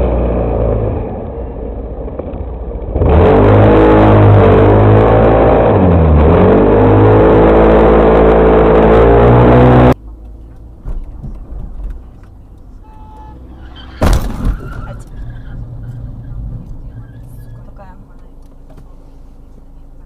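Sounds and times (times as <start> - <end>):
road noise: 0.0 - 20.0
vehicle engine running: 0.0 - 20.0
loud impact bang: 13.8 - 14.9.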